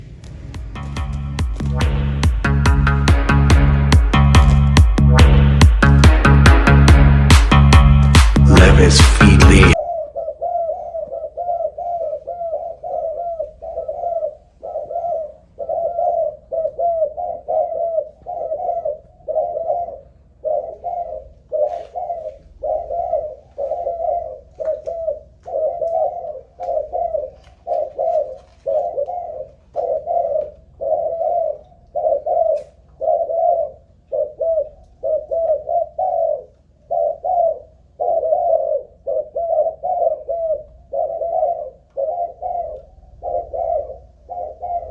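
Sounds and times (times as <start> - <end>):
dove cooing: 9.7 - 44.9.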